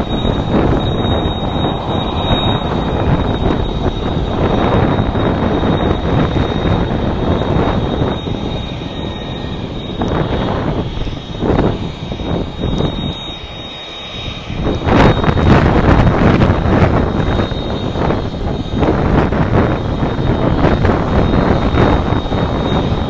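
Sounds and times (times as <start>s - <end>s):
jet engines rumbling: 0.0s - 23.0s
wind buffeting microphone: 0.0s - 23.0s.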